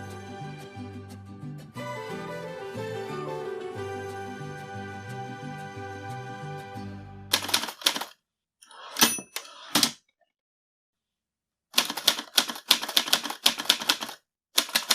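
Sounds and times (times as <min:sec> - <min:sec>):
typewriter key clacks: 0:07.4 - 0:08.1, 0:11.8 - 0:14.9
typewriter bell ding: 0:08.9 - 0:09.6.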